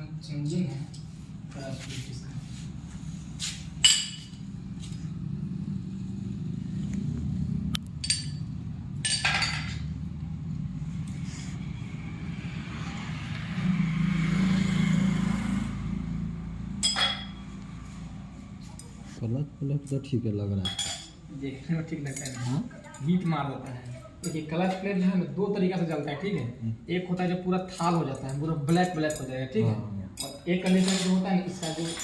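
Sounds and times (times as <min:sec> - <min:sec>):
metal tools clinking: 0:08.0 - 0:09.9, 0:16.8 - 0:17.4, 0:22.0 - 0:23.0, 0:30.2 - 0:32.0.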